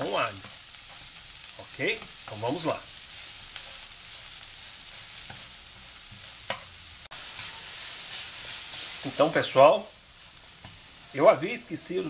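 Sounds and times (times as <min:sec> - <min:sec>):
vegetables sizzling in a frying pan: 0:00.0 - 0:12.0
wooden spatula scraping a pan: 0:00.1 - 0:09.6.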